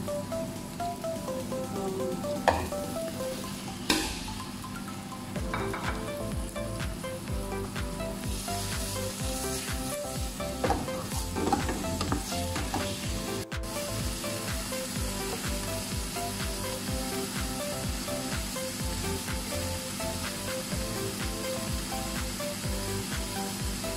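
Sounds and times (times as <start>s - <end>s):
chicken sizzling in oil: 8.3s - 23.9s.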